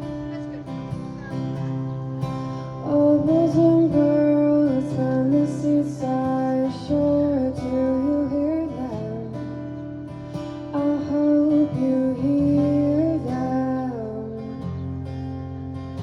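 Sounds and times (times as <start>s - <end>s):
strummed acoustic guitar: 0.0s - 16.0s
woman singing: 2.8s - 9.8s, 10.7s - 14.7s.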